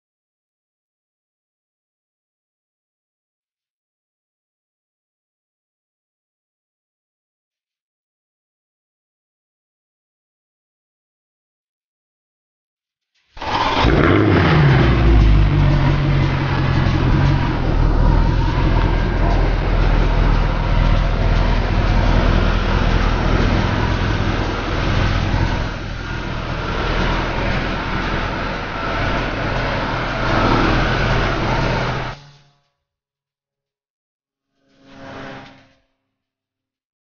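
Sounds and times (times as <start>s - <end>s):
car engine under load: 13.4s - 32.2s
road and wind noise: 13.4s - 32.2s.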